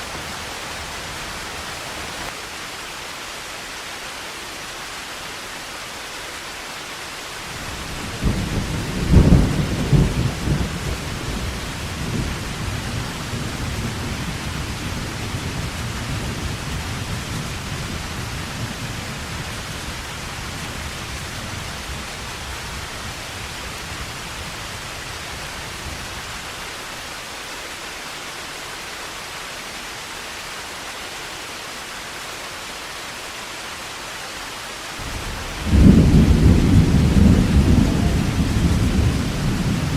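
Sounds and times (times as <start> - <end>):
heavy rain: 0.0 - 39.9
thunder rumbling: 7.6 - 19.8, 35.0 - 39.9.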